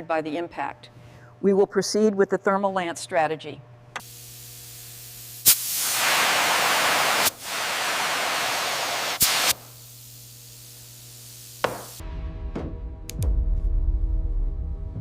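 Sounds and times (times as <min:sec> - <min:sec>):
gas jet hissing: 0:04.0 - 0:12.0.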